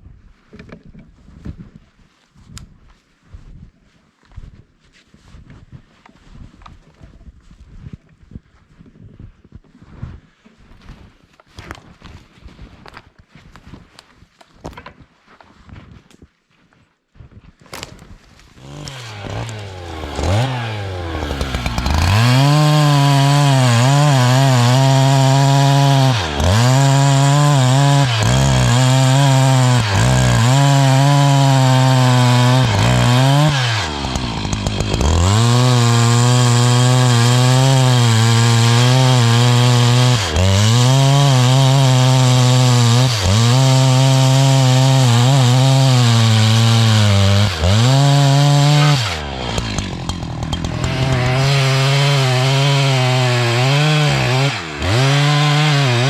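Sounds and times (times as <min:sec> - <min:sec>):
chainsaw cutting wood: 0:17.7 - 0:56.0.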